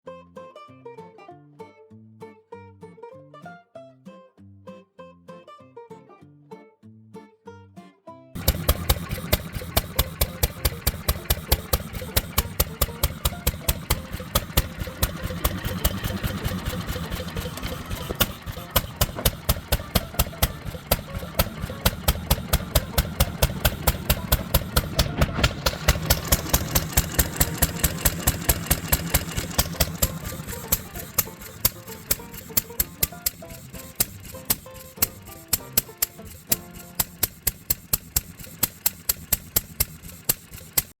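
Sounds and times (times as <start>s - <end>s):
engine exhaust beat: 8.4s - 41.0s.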